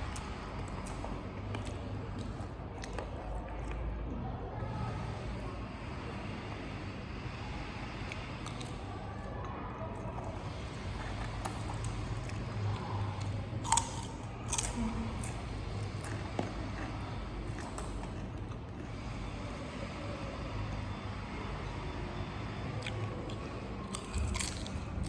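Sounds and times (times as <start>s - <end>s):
person chewing: 0.0s - 4.0s, 8.0s - 8.8s, 9.9s - 19.6s, 22.8s - 25.0s.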